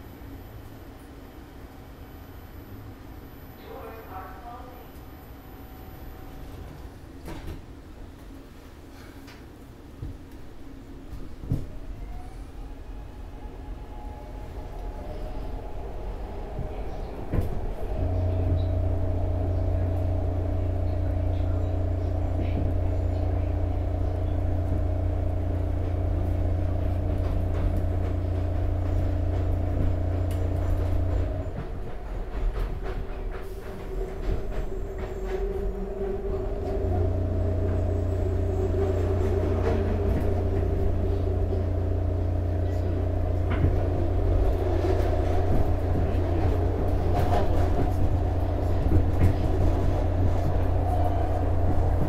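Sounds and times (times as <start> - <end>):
train low hum: 0.0 - 52.0
train wheels rumbling: 6.1 - 52.0
train motor whine: 11.5 - 31.9, 33.5 - 52.0.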